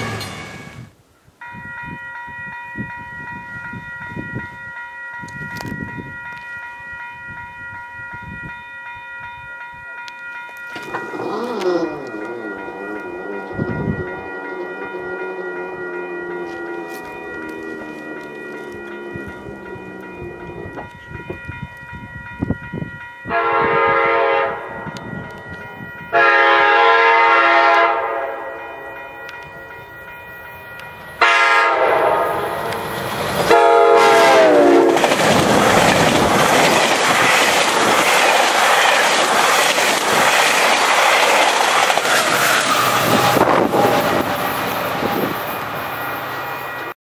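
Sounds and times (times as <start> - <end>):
train horn blasts: 0.0 - 0.9, 10.8 - 21.0, 23.3 - 25.5, 26.1 - 29.4, 31.2 - 32.9, 33.5 - 35.1
train wheel and rail noise: 0.0 - 47.0.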